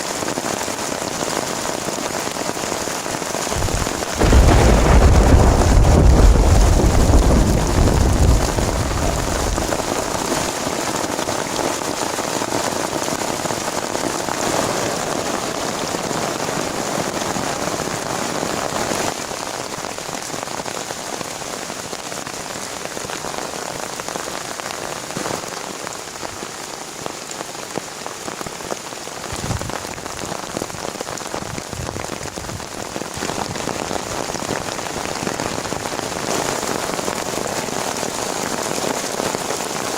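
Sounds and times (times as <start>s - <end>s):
heavy rain: 0.0s - 39.9s
deep low rumble: 3.6s - 10.1s.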